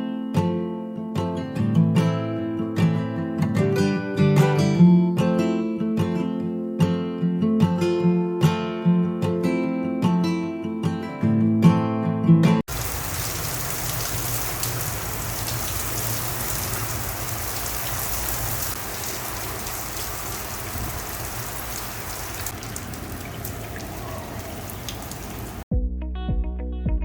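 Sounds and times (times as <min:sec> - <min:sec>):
steady rain falling: 0:12.7 - 0:25.6.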